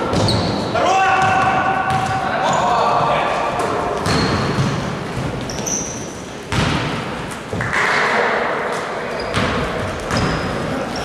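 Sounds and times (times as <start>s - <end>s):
basketball bouncing on court: 0.0s - 2.6s, 4.0s - 5.8s, 6.5s - 8.0s, 9.2s - 10.6s
short high squeaks: 5.5s - 6.2s.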